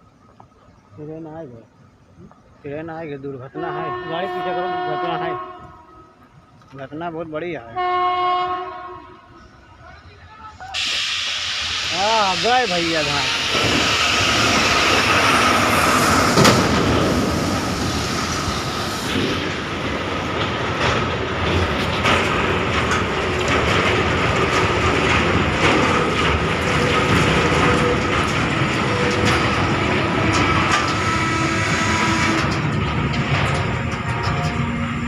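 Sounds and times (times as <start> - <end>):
train wheels clattering on rails: 10.6 - 35.0.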